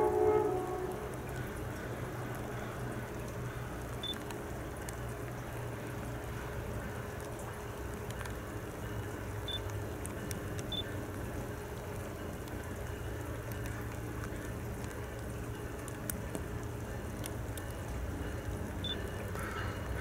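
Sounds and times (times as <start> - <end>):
rain falling: 0.0 - 20.0
drops ticking on camera: 3.2 - 6.0, 9.1 - 11.2.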